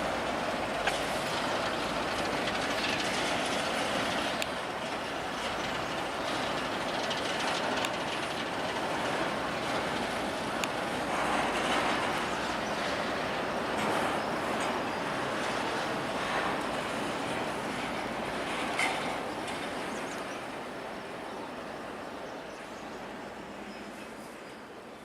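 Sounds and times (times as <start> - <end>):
freight train cars rolling: 0.0 - 25.0.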